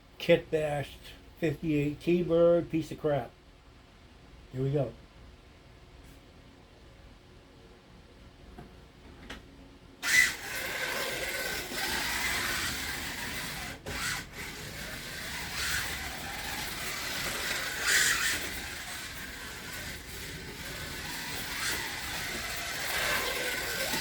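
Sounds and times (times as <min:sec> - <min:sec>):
slot car motor whirring: 0:10.0 - 0:24.0.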